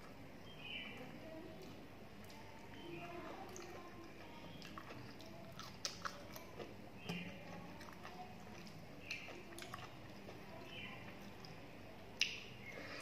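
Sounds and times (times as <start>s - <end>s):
chewing and wet mouth smacks: 1.6s - 11.6s, 12.2s - 13.0s.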